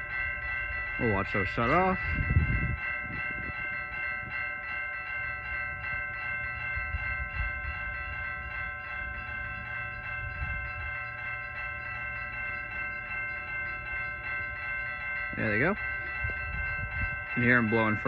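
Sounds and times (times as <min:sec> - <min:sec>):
crossing warning bell clanging: 0:00.0 - 0:18.0.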